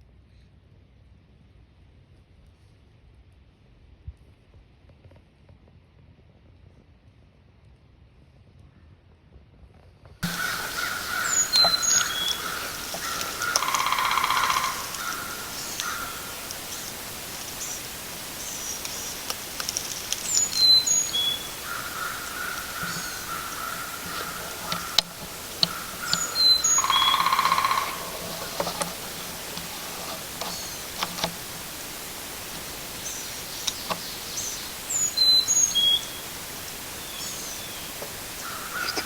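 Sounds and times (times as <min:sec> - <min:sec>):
lower bird call: 0:10.2 - 0:39.0
songbird whistled phrase: 0:10.3 - 0:27.9, 0:33.0 - 0:39.0.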